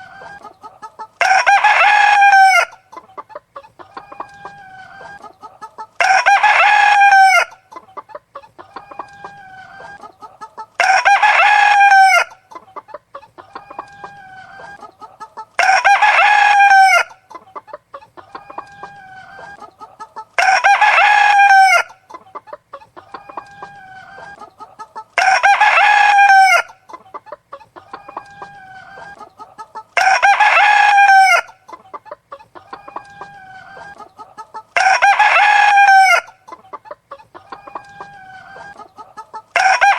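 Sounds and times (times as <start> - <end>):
hen clucking: 0.0 - 39.9
rooster crowing: 1.2 - 2.8, 6.0 - 7.6, 10.8 - 12.4, 15.6 - 17.2, 20.4 - 22.0, 25.2 - 26.8, 30.0 - 31.6, 34.8 - 36.4, 39.5 - 39.9.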